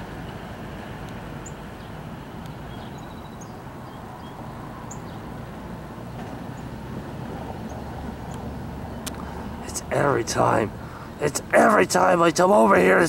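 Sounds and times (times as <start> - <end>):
distant train rumble: 0.0 - 13.0
high bird chirps: 2.5 - 5.2.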